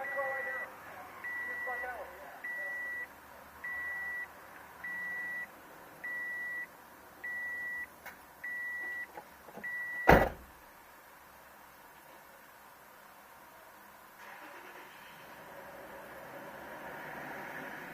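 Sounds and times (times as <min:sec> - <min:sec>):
car warning chime beeping: 0:00.0 - 0:10.2
car door shutting: 0:09.6 - 0:10.5.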